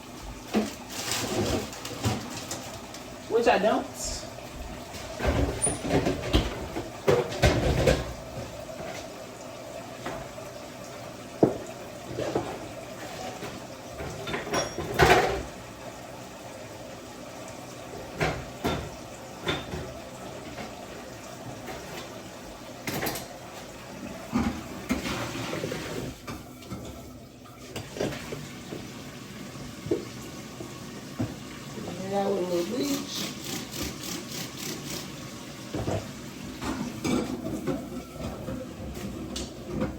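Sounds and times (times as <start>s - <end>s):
tap water running: 0.0s - 39.9s
dishes and pots clattering: 4.9s - 9.1s, 11.4s - 15.6s, 18.0s - 20.9s, 22.8s - 23.7s, 35.7s - 39.9s.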